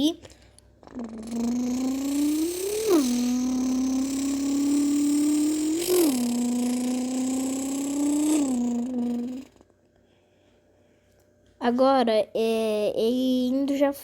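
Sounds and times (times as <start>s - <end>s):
person imitating engine accelerating: 0.8s - 9.7s.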